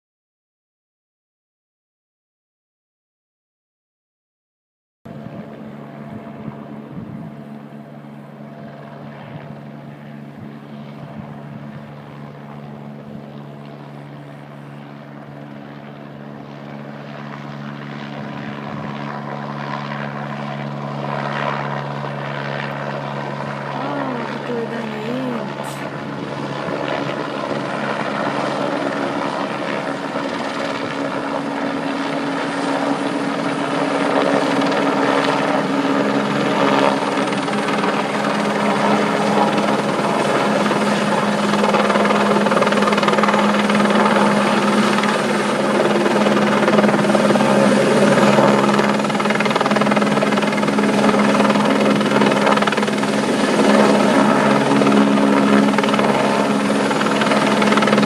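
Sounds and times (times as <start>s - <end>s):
helicopter droning: 5.1s - 58.0s.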